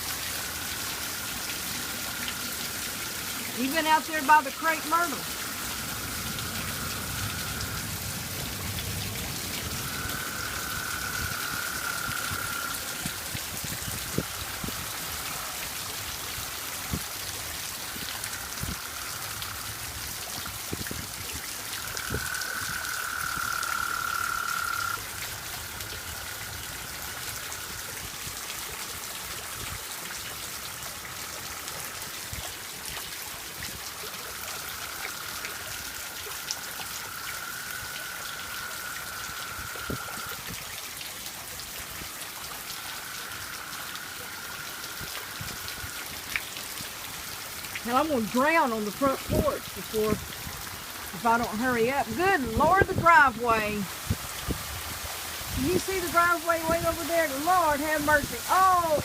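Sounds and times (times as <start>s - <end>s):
heavy rain hiss: 0.0s - 59.0s
water drips: 0.0s - 59.0s
toads trilling: 3.6s - 7.9s, 9.7s - 13.1s, 21.8s - 26.6s, 34.6s - 40.4s.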